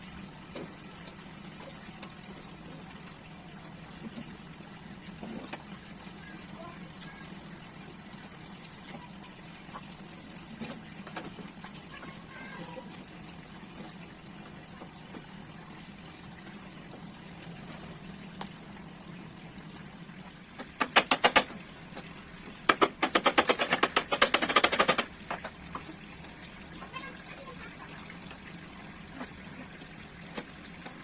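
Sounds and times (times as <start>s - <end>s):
rapid clicking clatter: 20.6s - 21.6s, 22.6s - 25.6s.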